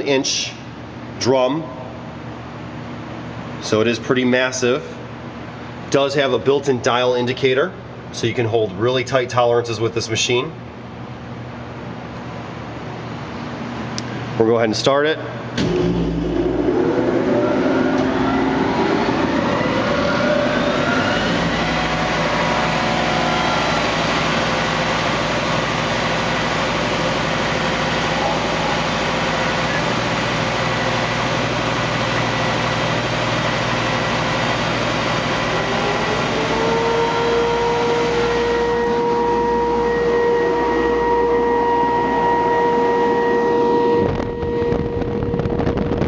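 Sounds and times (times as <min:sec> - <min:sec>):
steady rising tone: 0:15.6 - 0:24.0.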